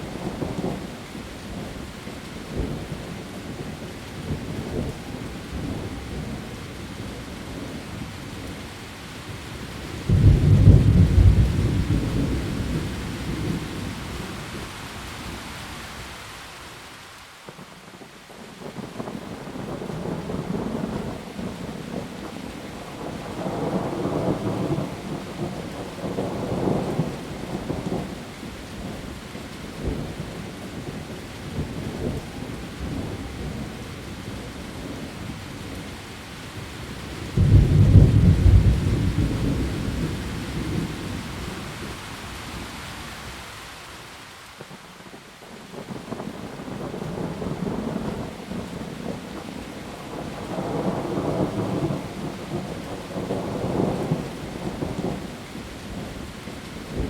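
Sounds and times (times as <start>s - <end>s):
heavy rain on leaves: 0.0s - 57.0s
thunder rumbling: 10.0s - 14.4s, 37.0s - 42.6s
loud thunderclap: 10.1s - 13.6s, 37.4s - 41.2s.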